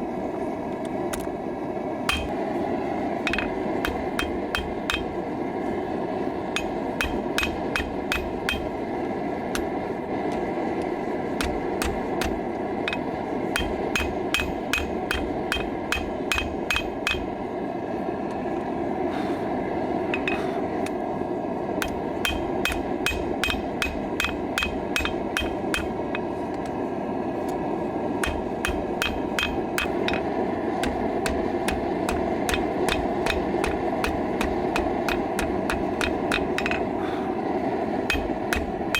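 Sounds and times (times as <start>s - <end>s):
hammer striking steel on anvil: 2.1s - 2.4s, 3.2s - 5.3s, 6.5s - 17.5s, 20.1s - 21.0s, 21.8s - 26.8s, 28.2s - 37.0s, 38.0s - 38.9s.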